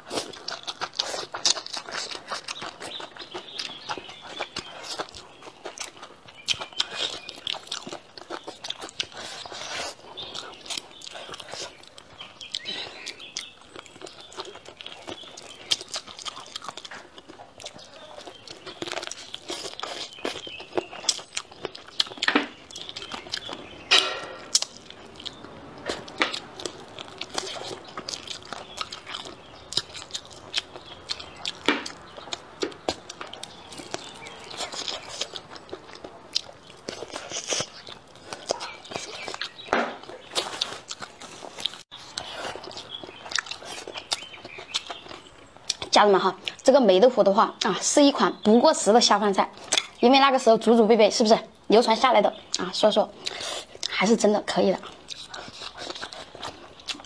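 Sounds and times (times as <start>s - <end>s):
person chewing food: 0.0s - 46.7s, 49.5s - 50.0s, 52.4s - 57.0s
wet mouth clicks and smacks: 49.6s - 50.0s.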